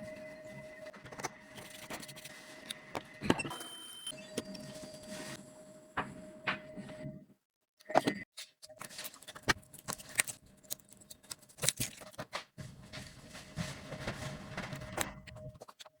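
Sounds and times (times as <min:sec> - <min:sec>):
rustling: 0:12.0 - 0:15.3.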